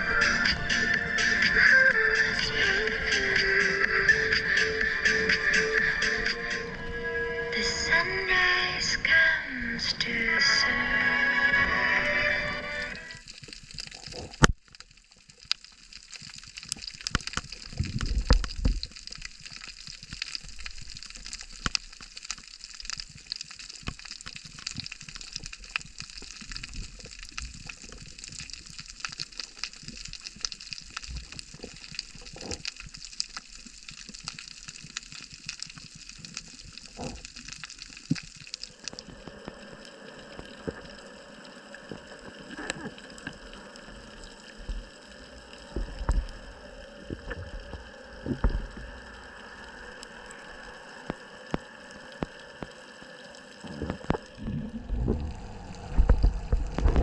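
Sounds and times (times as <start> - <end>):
fizz of tiny clicks and crackles: 13.0 - 57.0
sea water sloshing and splashing: 13.1 - 57.0
low rumble: 38.7 - 52.4, 53.6 - 57.0.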